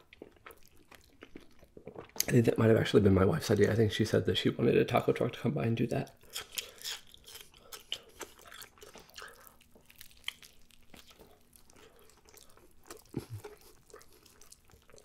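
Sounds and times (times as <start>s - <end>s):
man chewing burger: 0.0s - 2.3s, 6.2s - 15.0s.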